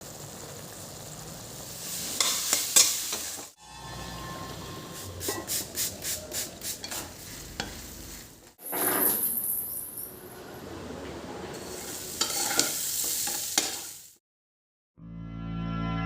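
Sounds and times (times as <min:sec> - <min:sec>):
food sizzling in a pan: 0:00.0 - 0:08.8, 0:11.5 - 0:14.2.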